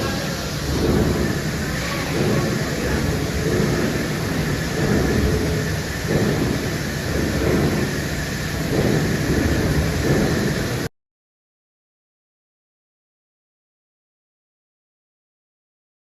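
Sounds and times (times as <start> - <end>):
low surging rumble: 0.0 - 10.9
welding arc crackling: 0.0 - 10.9.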